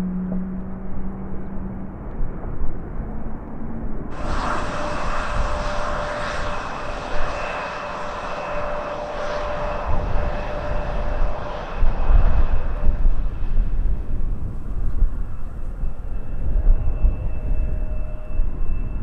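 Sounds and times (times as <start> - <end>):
high engine whine: 0.0 - 19.0
jet engines roaring: 4.1 - 19.0.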